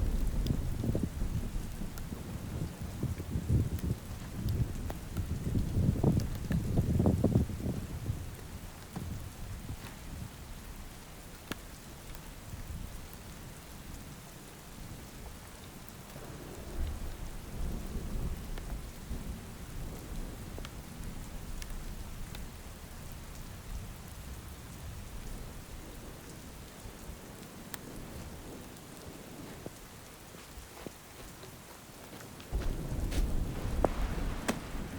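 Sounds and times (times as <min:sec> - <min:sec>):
low rumble of thunder: 0:00.0 - 0:11.0, 0:16.1 - 0:29.8, 0:32.5 - 0:34.9
steady rain falling: 0:00.0 - 0:34.9.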